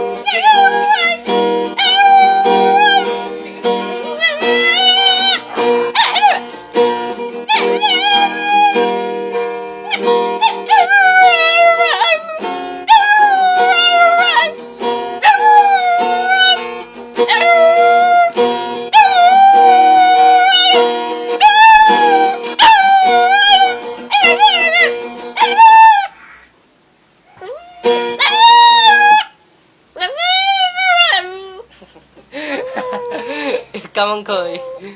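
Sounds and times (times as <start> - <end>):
dog howling: 0.2 - 1.2, 1.8 - 3.2, 4.0 - 6.5, 7.5 - 8.9, 9.9 - 14.6, 15.2 - 16.6, 17.3 - 20.8, 21.4 - 26.2, 27.3 - 29.4, 30.0 - 31.7, 32.5 - 33.5, 34.5 - 34.8
capoeira music: 16.0 - 25.7.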